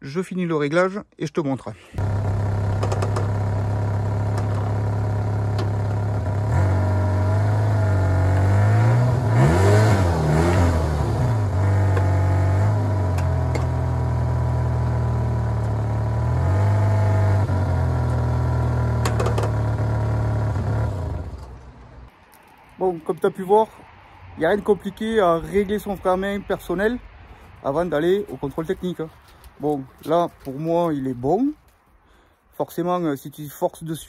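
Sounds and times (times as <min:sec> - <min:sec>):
car engine revving: 0:02.0 - 0:22.1.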